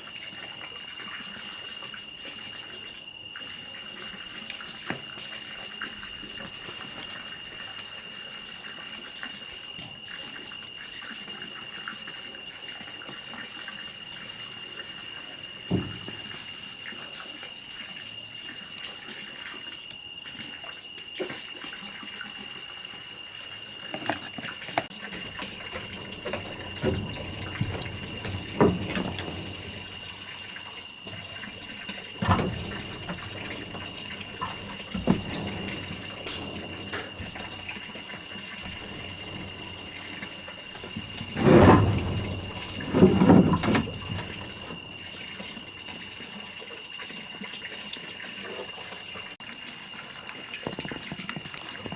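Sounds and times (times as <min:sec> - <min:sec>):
steady water-like noise: 0:23.7 - 0:47.5
scattered knocks: 0:25.1 - 0:30.4, 0:31.1 - 0:45.2
loud thumps: 0:25.2 - 0:30.4, 0:32.1 - 0:45.0.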